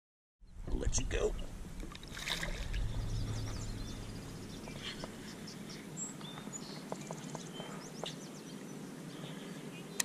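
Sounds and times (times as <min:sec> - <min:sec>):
low rumble: 0:00.4 - 0:06.6
faint birds chirping: 0:00.4 - 0:10.0.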